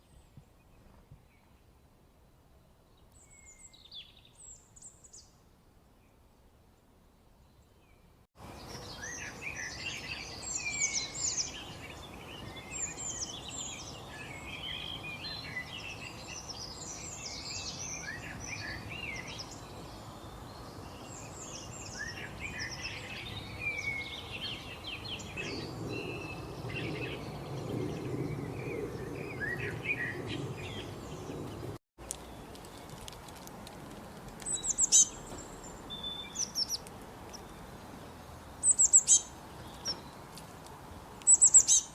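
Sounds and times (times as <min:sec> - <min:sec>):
birds chirping and singing: 0:07.5 - 0:32.9, 0:34.4 - 0:40.3, 0:40.9 - 0:41.9.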